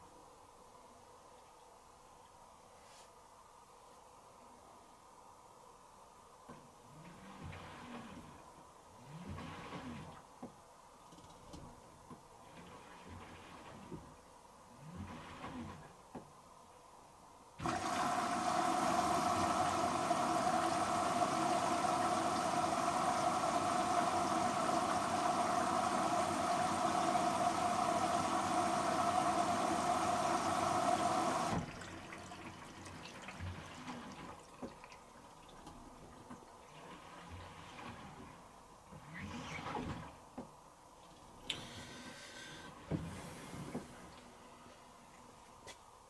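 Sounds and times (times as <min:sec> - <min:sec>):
valve shutting off: 0:17.6 - 0:31.7
water rushing in with hiss: 0:17.6 - 0:34.4, 0:41.5 - 0:44.5.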